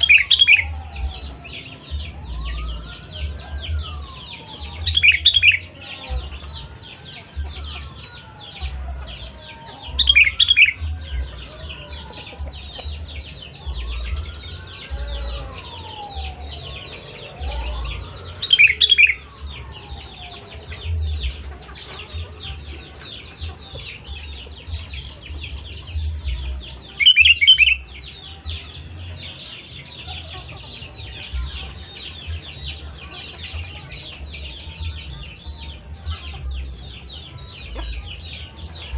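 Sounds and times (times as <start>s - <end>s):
whistled bird notes: 0.0s - 22.4s
many birds chirping: 0.0s - 38.9s.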